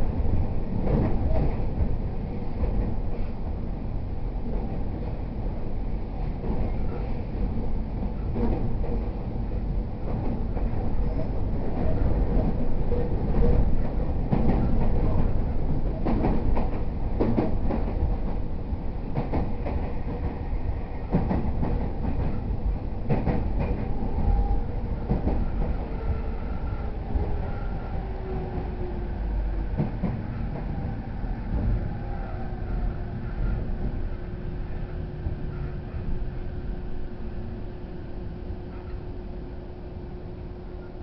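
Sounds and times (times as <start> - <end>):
electric train rumbling: 0.0 - 41.0.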